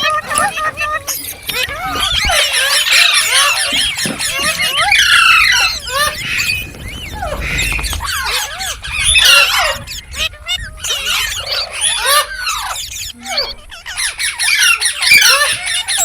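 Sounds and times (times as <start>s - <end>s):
parrots squawking and chattering: 0.0s - 16.0s.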